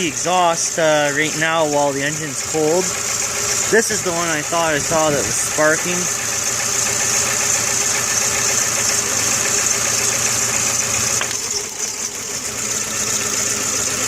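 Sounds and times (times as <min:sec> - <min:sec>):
car engine idling unevenly: 0:00.0 - 0:14.0.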